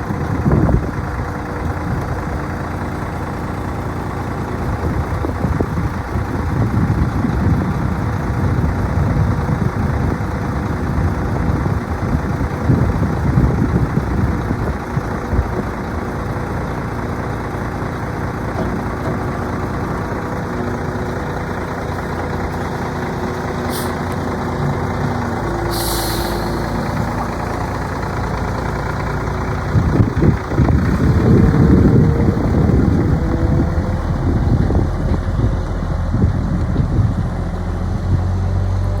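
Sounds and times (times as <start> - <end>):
diesel truck engine running: 0.0 - 39.0
air brake hiss: 23.7 - 24.0, 25.7 - 26.7.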